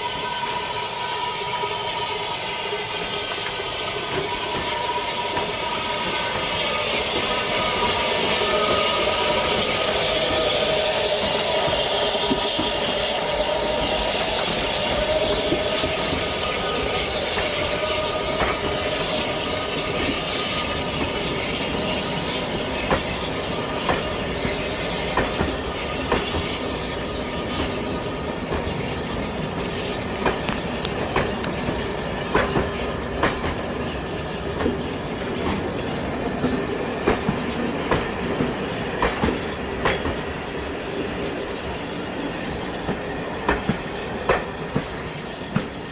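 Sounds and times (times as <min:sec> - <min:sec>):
train running on track: 0:00.0 - 0:45.9
wavering squeal: 0:00.0 - 0:45.9
wheels clicking over rail joints: 0:03.3 - 0:45.9.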